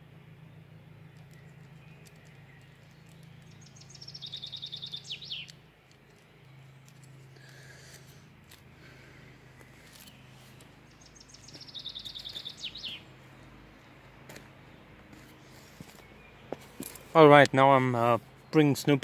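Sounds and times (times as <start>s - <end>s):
steady low hum: 0.0s - 19.0s
small bird trilling: 1.2s - 5.6s, 10.9s - 13.1s.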